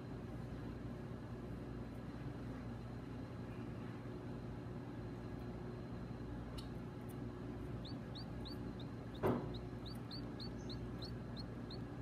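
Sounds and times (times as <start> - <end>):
steady low hum: 0.0 - 12.0
small birds peeping: 5.3 - 12.0.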